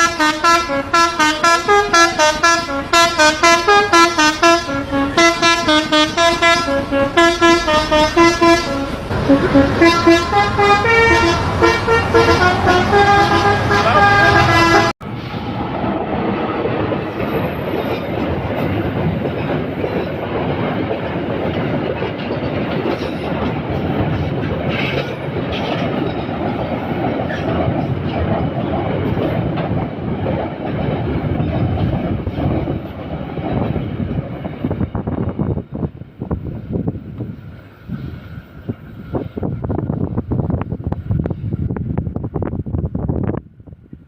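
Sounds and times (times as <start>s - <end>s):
horn-like tone: 0.0s - 15.0s
train wheels rumbling on rails: 0.0s - 44.0s.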